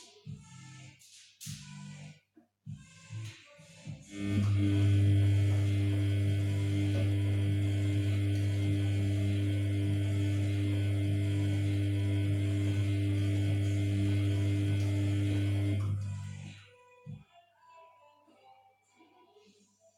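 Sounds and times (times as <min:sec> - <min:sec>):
washing machine humming: 0:04.1 - 0:16.5.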